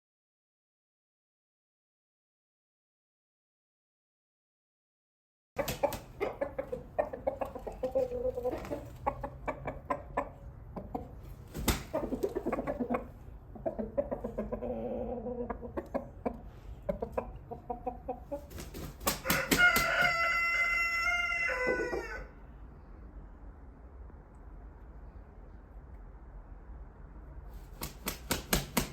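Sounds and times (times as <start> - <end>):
chickens clucking: 5.6 - 22.4
rooster crowing: 19.1 - 22.4.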